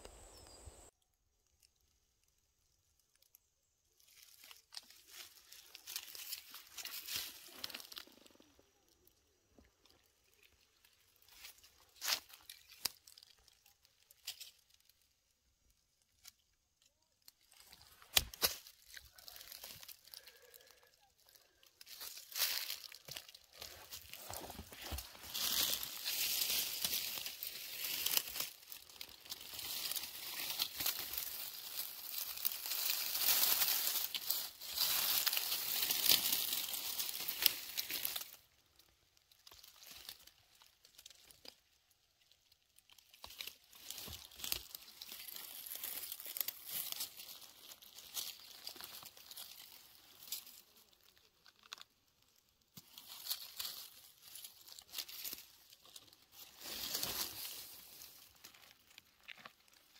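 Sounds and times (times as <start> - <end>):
dry material crackling and rustling: 3.9 - 59.9.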